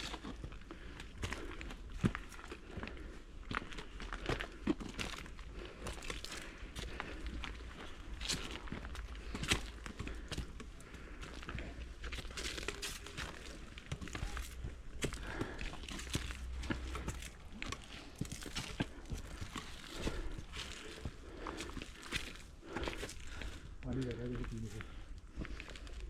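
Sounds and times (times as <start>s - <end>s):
crinkling and crunching: 0.0s - 26.0s.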